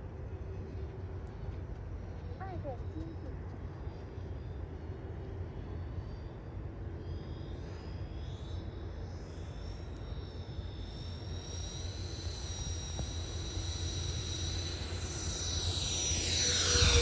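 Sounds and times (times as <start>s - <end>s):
electric ducted fans whining: 0.0s - 17.0s
low rumble: 14.2s - 17.0s.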